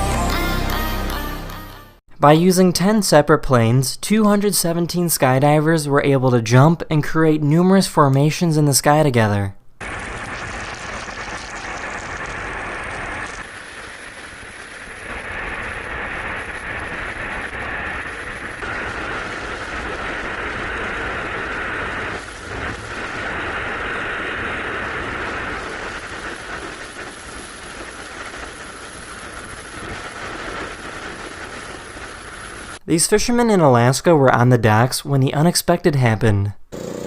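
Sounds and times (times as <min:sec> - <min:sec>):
rushing air in freefall: 0:09.8 - 0:32.8.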